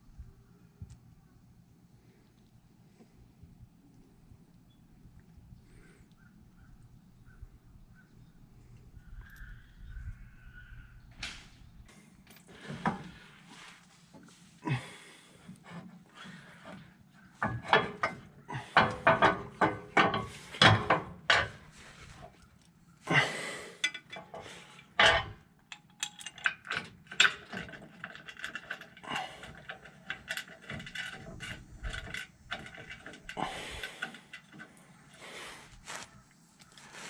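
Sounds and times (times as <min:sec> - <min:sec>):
tools knocking and clanking: 0:17.4 - 0:21.6, 0:23.8 - 0:34.8.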